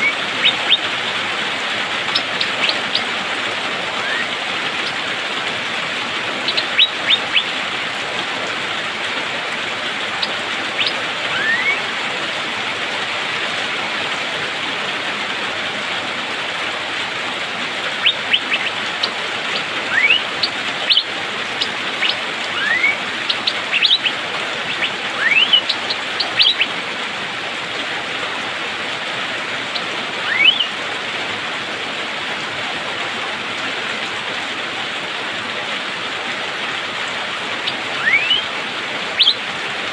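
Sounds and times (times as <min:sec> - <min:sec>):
bird whistling and calling: 0:00.0 - 0:00.9, 0:02.1 - 0:03.1, 0:04.0 - 0:05.0, 0:06.4 - 0:07.5, 0:10.2 - 0:11.8, 0:18.0 - 0:26.7, 0:30.2 - 0:30.7, 0:37.6 - 0:38.5, 0:39.2 - 0:39.4
steady rain: 0:00.0 - 0:39.9.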